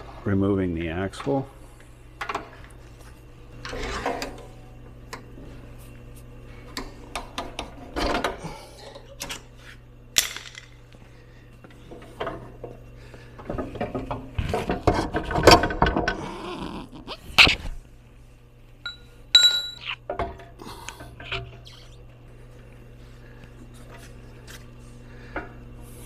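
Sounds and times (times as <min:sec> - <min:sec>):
metal tools clanking on axle: 0:18.9 - 0:19.9.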